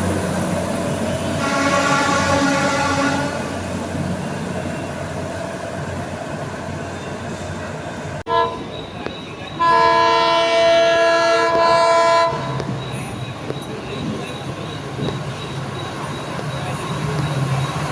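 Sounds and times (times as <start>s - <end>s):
train rumbling past: 0.0s - 17.9s
locomotive horn blasts: 1.3s - 3.7s, 8.3s - 8.6s, 9.6s - 12.5s.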